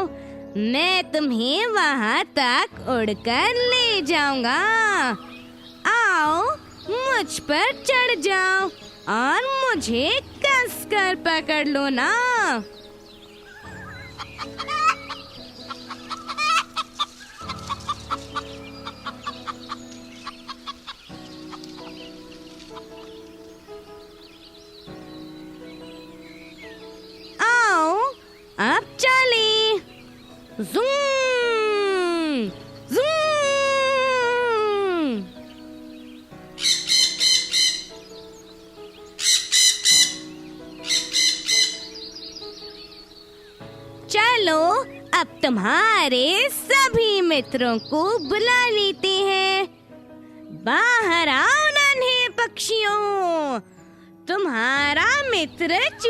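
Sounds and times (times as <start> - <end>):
soft background music: 0.0 - 56.0
high-pitched chirping squawks: 13.4 - 22.0, 36.6 - 38.2, 39.1 - 43.0.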